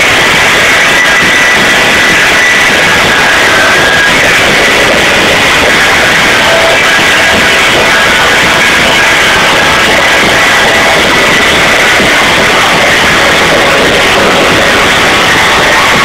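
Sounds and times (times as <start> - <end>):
distorted live rock band: 0.0 - 16.0.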